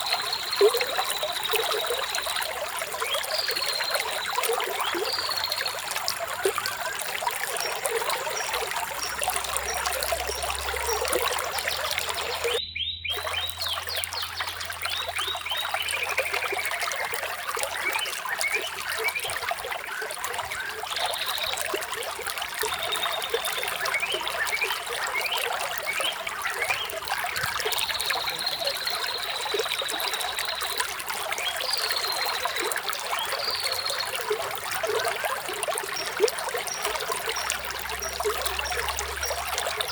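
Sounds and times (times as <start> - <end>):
birds chirping: 0.0 - 21.7
water trickling: 0.0 - 39.9.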